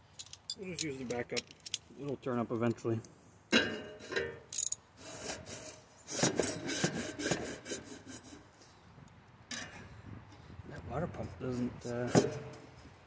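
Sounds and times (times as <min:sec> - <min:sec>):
gritty scraping at water pump: 0:04.9 - 0:08.8, 0:11.0 - 0:13.0.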